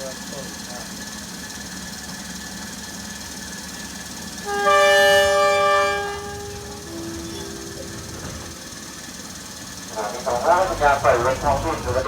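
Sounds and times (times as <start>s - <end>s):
diesel engine hum: 0.0s - 12.0s
train horn two-note blast: 4.4s - 9.0s.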